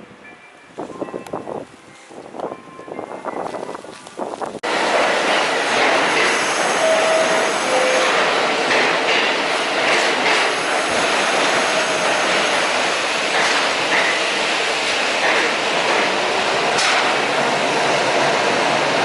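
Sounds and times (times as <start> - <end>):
subway train wheels rushing on rail: 0.0 - 19.0
high wheel squeals: 6.2 - 8.3.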